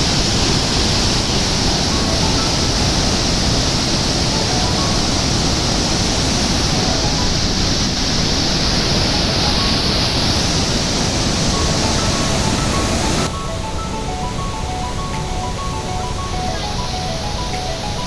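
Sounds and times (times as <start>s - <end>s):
fast river rushing: 0.0s - 18.0s
faint piano notes: 11.5s - 18.0s.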